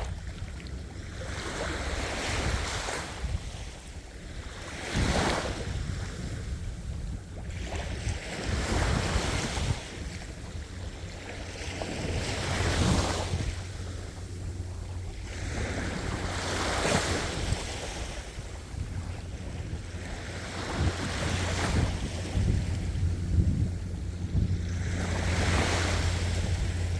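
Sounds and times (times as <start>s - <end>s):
low steady rumble: 0.0s - 26.9s
ocean waves breaking on shore: 0.0s - 26.9s.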